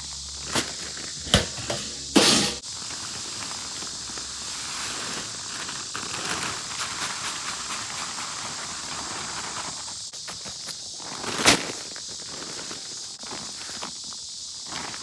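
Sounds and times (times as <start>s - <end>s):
footsteps outdoors: 0.0s - 4.3s.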